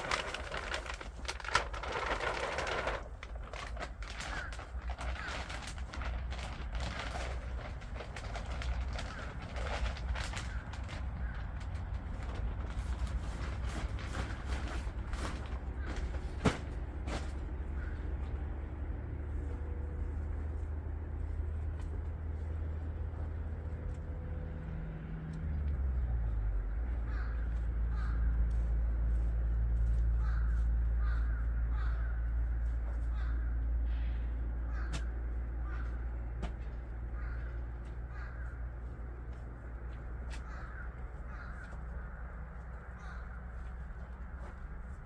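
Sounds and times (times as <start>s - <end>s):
crows cawing: 2.6s - 7.0s, 8.4s - 12.4s, 17.7s - 18.1s, 27.0s - 28.6s, 30.1s - 44.7s.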